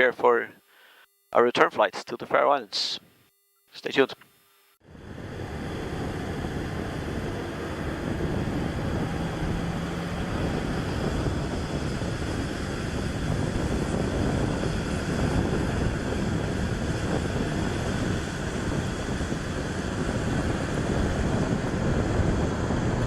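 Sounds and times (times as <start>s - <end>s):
jet aircraft rushing: 4.9s - 23.0s.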